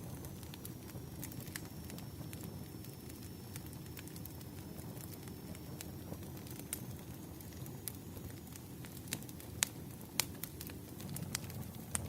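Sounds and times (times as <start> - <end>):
campfire crackling: 0.0 - 12.0.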